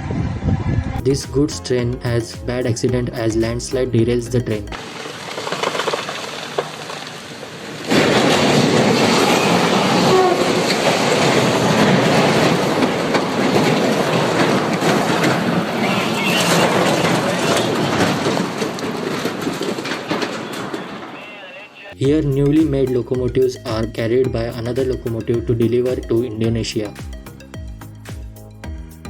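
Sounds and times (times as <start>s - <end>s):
train wagons rumbling and clattering: 6.9s - 26.4s.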